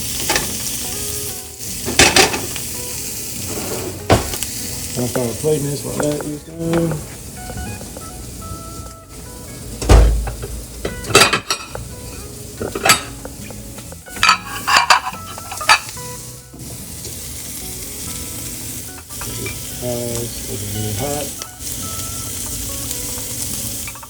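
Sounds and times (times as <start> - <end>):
utensils and plates clattering: 0.0 - 0.8, 1.7 - 2.7, 3.4 - 8.0, 9.8 - 16.1, 18.9 - 24.0
food sizzling in a pan: 0.0 - 24.0.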